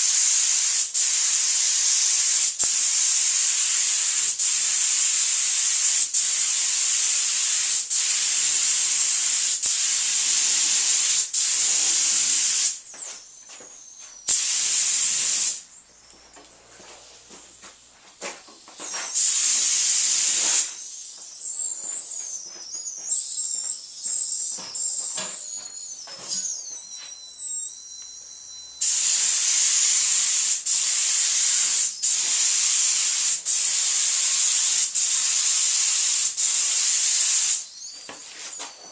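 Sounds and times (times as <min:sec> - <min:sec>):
paint spray gun hissing: 0:00.0 - 0:12.8, 0:14.3 - 0:15.6, 0:18.7 - 0:21.0, 0:28.8 - 0:37.7
wavering high whistle: 0:11.5 - 0:16.4, 0:18.8 - 0:29.8, 0:37.0 - 0:38.9.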